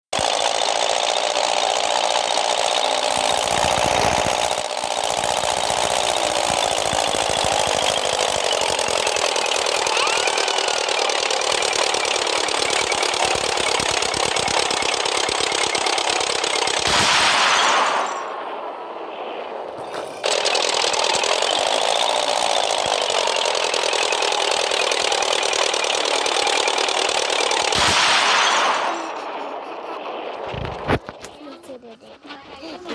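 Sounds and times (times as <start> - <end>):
light aircraft engine droning: 0.3 - 16.8.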